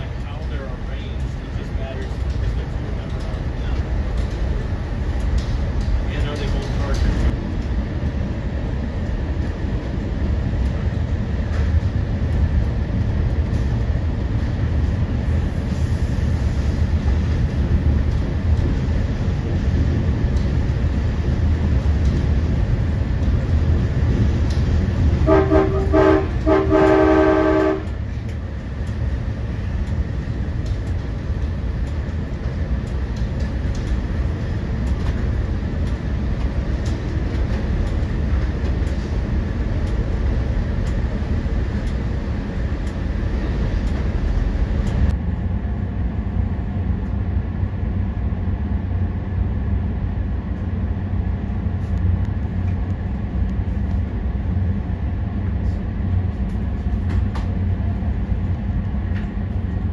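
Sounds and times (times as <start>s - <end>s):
train rumbling: 0.0s - 59.9s
train horn blasts: 25.2s - 28.0s.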